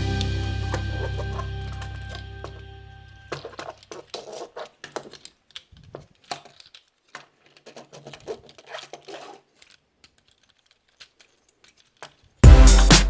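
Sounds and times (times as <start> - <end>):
plastic toy parts clicking: 3.2 - 12.4.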